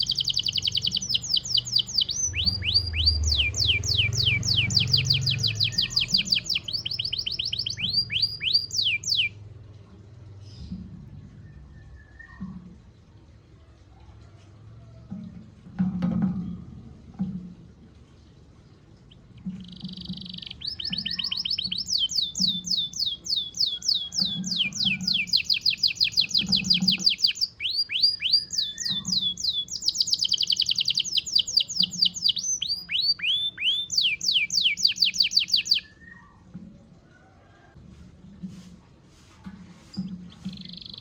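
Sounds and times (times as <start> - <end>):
canary singing rapid trills: 0.0 - 9.4, 19.1 - 36.3, 40.3 - 41.0.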